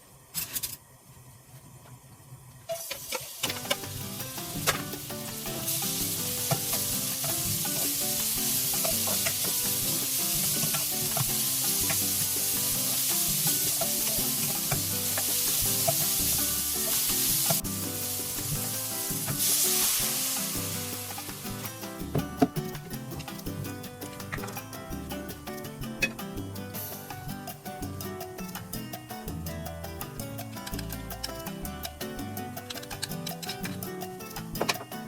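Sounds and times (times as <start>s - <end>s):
food sizzling in a pan: 2.7s - 22.0s
soft background music: 3.4s - 35.0s.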